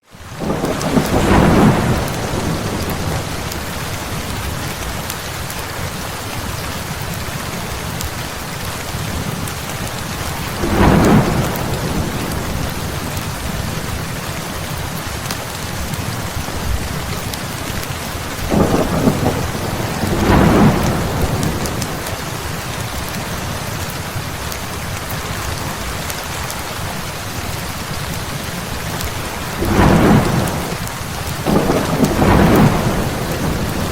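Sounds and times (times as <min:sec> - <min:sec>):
heavy rain falling: 0:00.0 - 0:33.9
thunder rumbling: 0:00.4 - 0:04.5, 0:10.4 - 0:23.2, 0:28.0 - 0:33.9.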